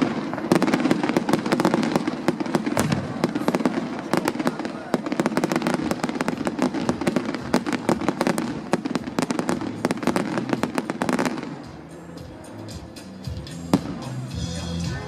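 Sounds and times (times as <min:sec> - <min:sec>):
fireworks crackling and banging: 0:00.0 - 0:13.0, 0:13.6 - 0:15.0.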